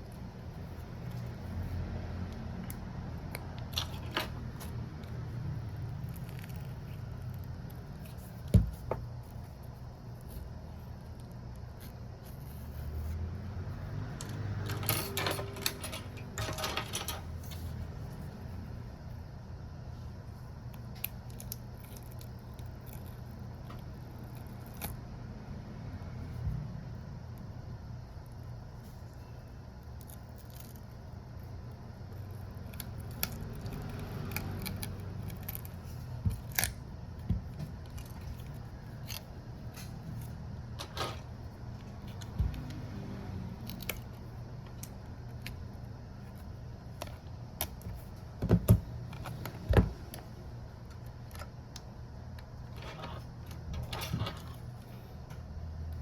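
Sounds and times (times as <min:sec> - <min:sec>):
steady low hum: 0:00.0 - 0:56.0
small tools clicking and scraping: 0:32.2 - 0:42.9.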